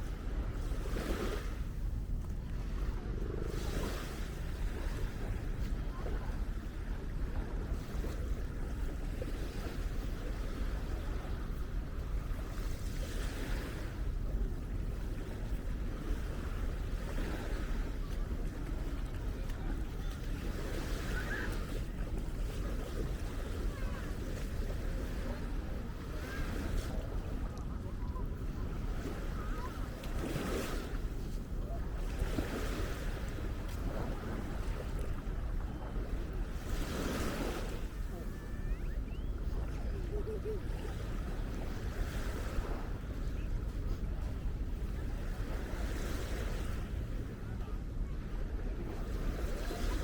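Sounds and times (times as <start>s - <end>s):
waves washing onto beach: 0.0s - 50.0s
wind buffeting microphone: 0.0s - 50.0s
faint high chirp: 38.3s - 39.6s.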